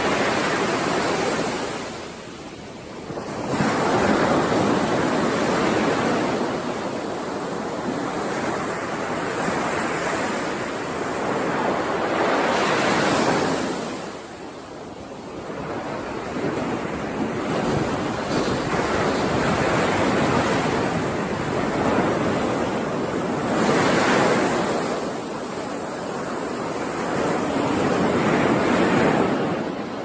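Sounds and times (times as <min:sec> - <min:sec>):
sea waves washing ashore: 0:00.0 - 0:30.0.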